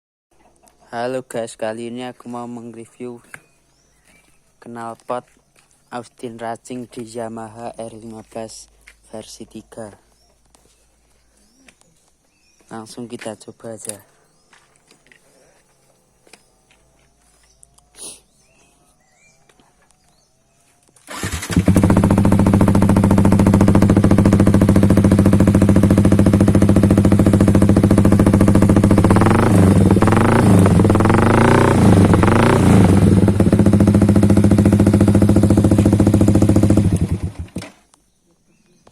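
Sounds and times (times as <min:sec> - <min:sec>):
motorcycle engine idling and revving: 0:21.0 - 0:37.7.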